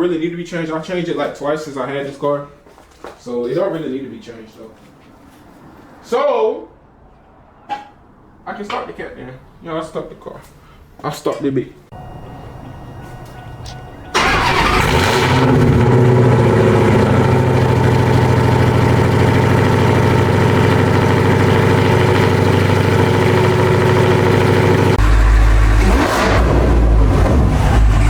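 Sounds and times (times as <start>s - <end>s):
car engine starting and idling: 12.0s - 28.0s.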